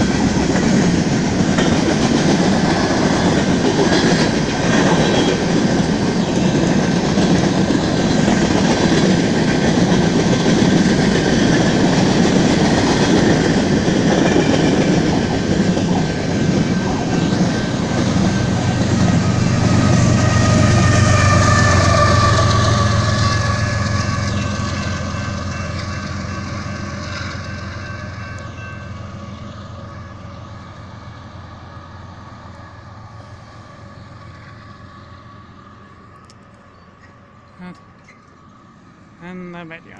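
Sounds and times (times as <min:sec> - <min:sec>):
train wheels clattering on rails: 0:00.0 - 0:29.6
diesel locomotive drone: 0:00.0 - 0:39.9.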